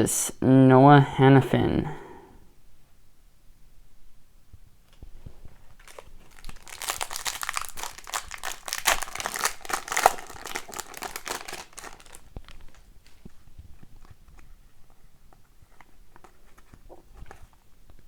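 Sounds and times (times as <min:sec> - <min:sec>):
foil wrapper crinkling and tearing: 0:05.7 - 0:14.1.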